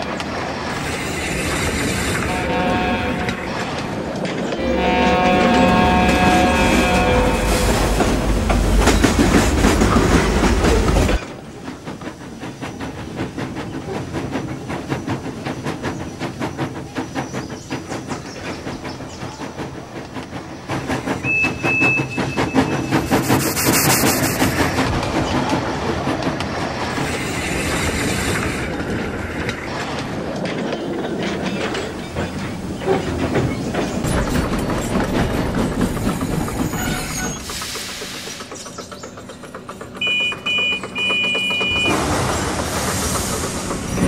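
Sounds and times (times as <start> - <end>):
train rumble: 0.0 - 44.0
train wheels clickety-clack: 0.0 - 44.0
steam hiss: 20.4 - 25.0, 35.9 - 39.0, 41.8 - 44.0.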